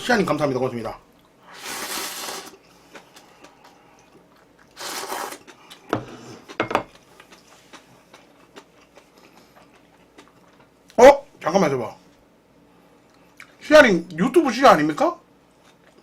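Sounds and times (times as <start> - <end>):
slurping noodles: 1.5 - 2.6, 4.7 - 6.5.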